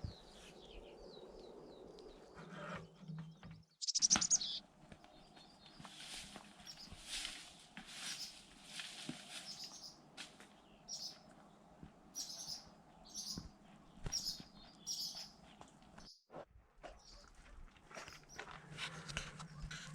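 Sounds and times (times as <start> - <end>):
short high bird chirps: 3.8 - 4.6.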